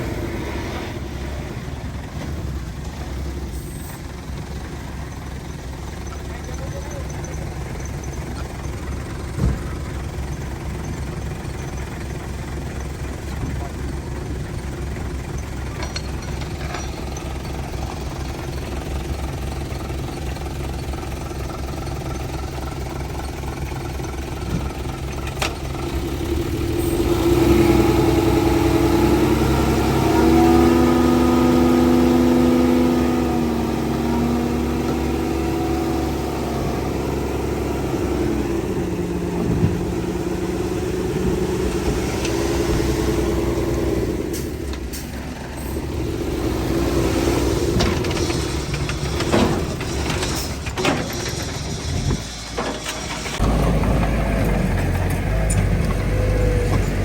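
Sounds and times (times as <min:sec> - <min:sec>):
diesel engine rumbling: 0:00.0 - 0:57.0
engine revving with high whine: 0:25.8 - 0:44.9, 0:45.7 - 0:48.4.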